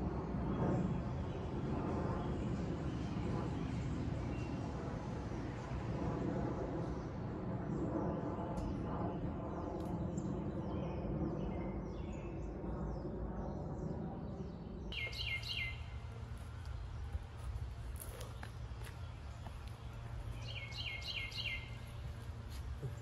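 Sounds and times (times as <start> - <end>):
songbirds chirping: 8.0 - 23.0
outdoor hiss and rumble: 13.8 - 23.0.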